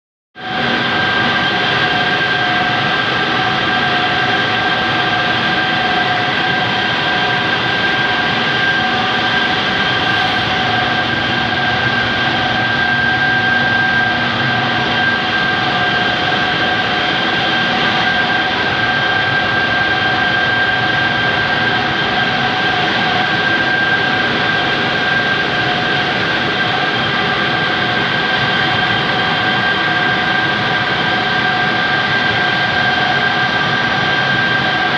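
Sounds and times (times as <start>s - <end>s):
high machine whine: 5.2s - 18.7s.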